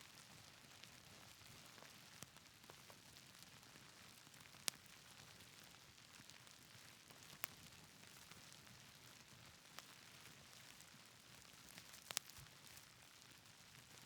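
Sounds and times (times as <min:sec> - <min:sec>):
wood fire crackling pops: 0:04.2 - 0:08.4, 0:09.6 - 0:12.9.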